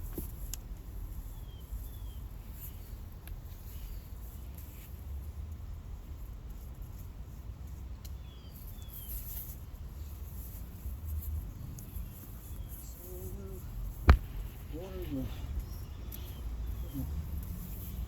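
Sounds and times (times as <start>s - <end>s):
sharp knock: 14.1s - 14.5s.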